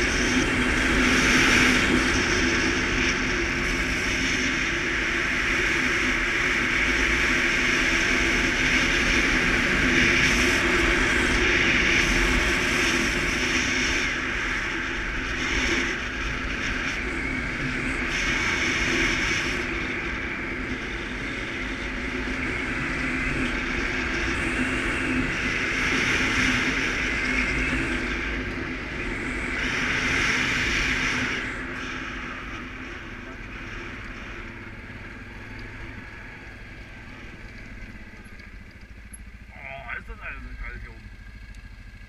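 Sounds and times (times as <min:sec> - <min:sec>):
rushing noise: 0:00.0 - 0:41.1
atv engine running: 0:00.0 - 0:42.0.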